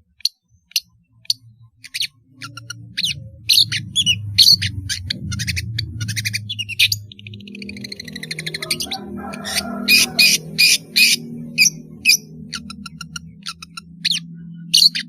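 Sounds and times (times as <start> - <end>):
steady low hum: 0.0 - 15.0
shrike singing harsh notes: 6.4 - 13.4.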